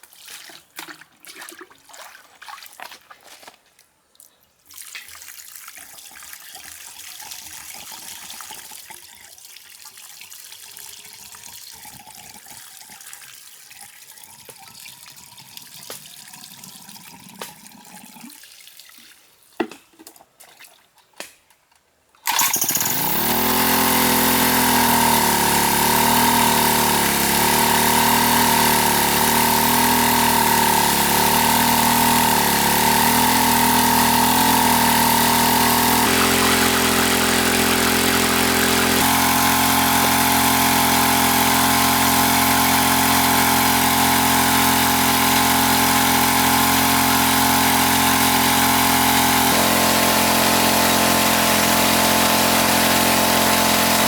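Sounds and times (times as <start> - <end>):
loud steady motor: 22.3 - 54.0.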